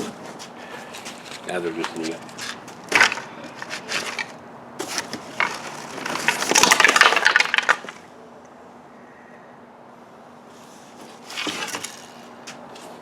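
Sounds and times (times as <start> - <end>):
decorations cracking and crackling: 0.7 - 8.1.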